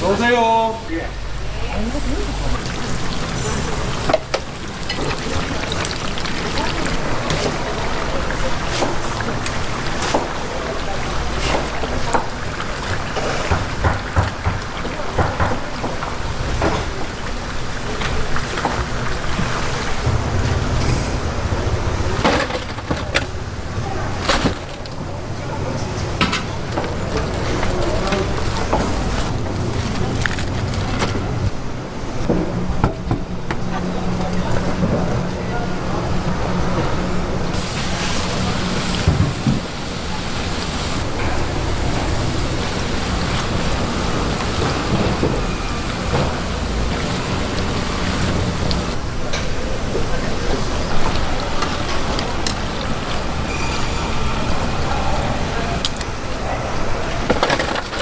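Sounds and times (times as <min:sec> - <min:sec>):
background chatter: 0:00.0 - 0:58.0
food sizzling in hot oil: 0:37.6 - 0:49.0.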